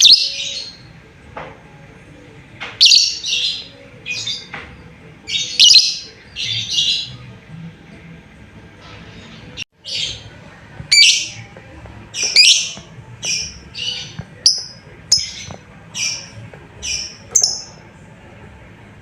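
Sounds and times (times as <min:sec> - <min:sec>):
lovebird harsh high calls: 0:05.3 - 0:07.1.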